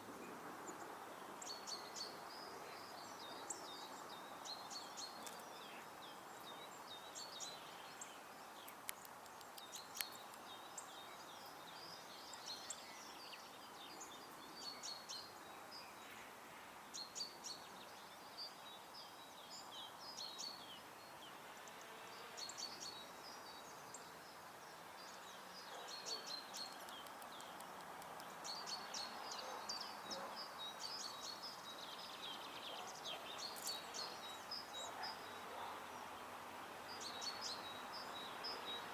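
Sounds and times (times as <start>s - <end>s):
songbirds singing and chirping: 0.0s - 38.9s
sharp clicks: 26.6s - 28.4s.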